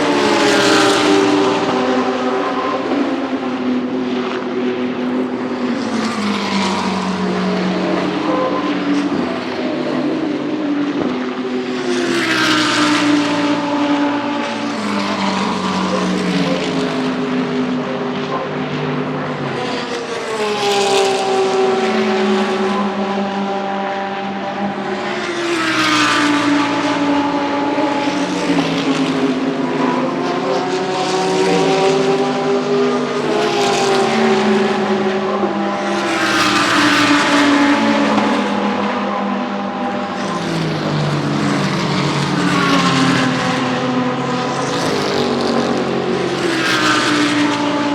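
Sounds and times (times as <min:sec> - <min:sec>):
race cars passing at speed: 0:00.0 - 0:47.9.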